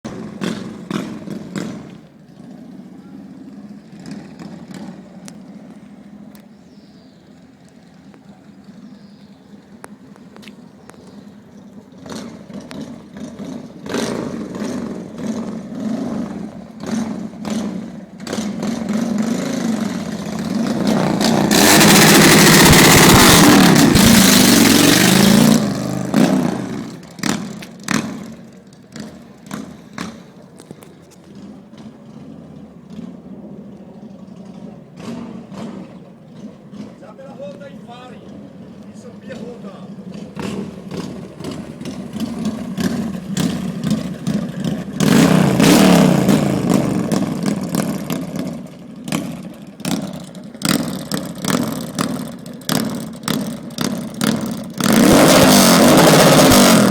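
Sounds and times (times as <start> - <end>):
motorcycle engine idling and revving: 0.0 - 56.9
exhaust pops: 16.7 - 33.3, 34.3 - 56.9.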